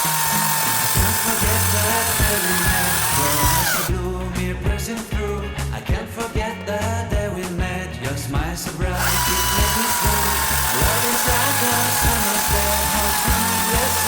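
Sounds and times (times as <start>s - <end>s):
power tool motor whining: 0.0s - 3.9s, 9.0s - 14.0s
background music with beat: 0.9s - 14.0s.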